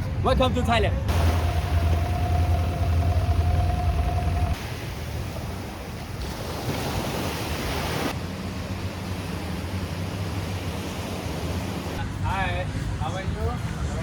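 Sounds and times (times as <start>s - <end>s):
sea surf washing onto beach: 1.1s - 8.2s.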